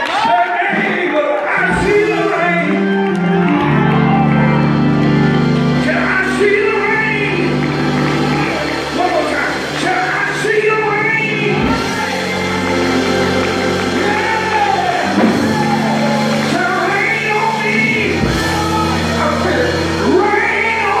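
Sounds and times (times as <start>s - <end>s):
held instrumental chords: 1.6s - 21.0s
person singing: 9.9s - 21.0s.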